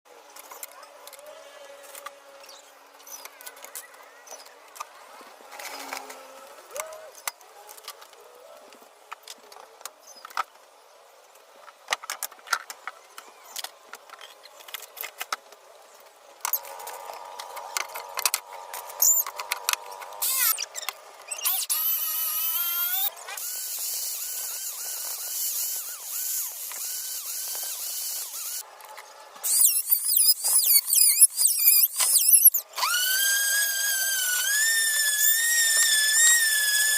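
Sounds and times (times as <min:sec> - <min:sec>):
power tool whine: 0:16.5 - 0:28.6, 0:29.4 - 0:36.9.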